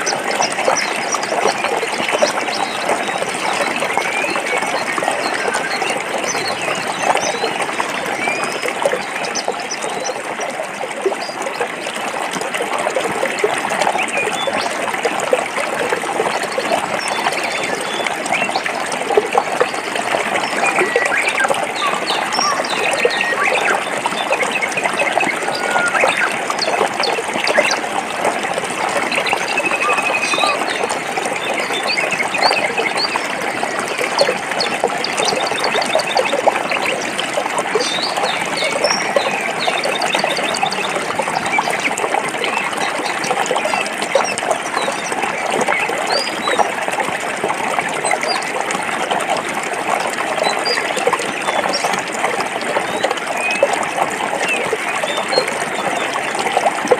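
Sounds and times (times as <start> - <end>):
stream splashing over rocks: 0.0 - 56.9
bird chirps: 20.5 - 27.8.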